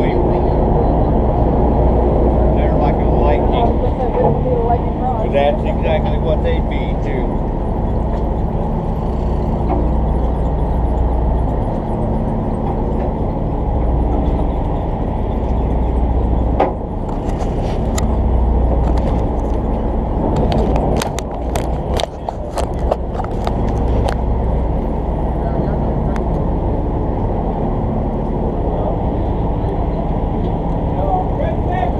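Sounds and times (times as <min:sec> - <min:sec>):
boat engine droning: 0:00.0 - 0:31.9
sharp clicks and knocks: 0:05.7 - 0:24.3.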